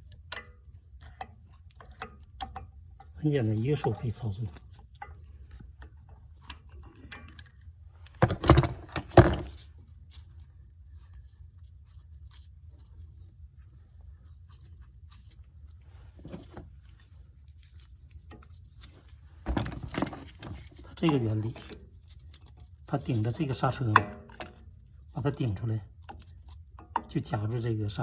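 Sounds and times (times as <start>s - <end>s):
metal tools clattering: 6.9s - 7.6s, 8.2s - 9.6s, 19.5s - 21.7s.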